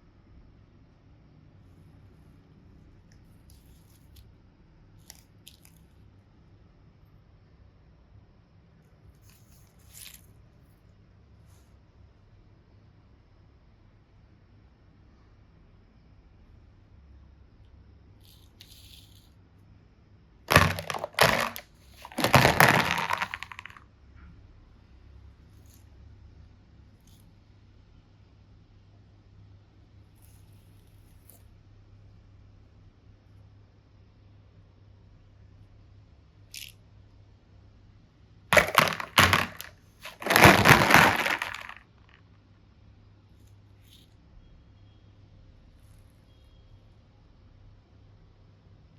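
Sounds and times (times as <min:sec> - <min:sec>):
crackling and crinkling from hands: 0:20.5 - 0:23.8, 0:38.6 - 0:41.8.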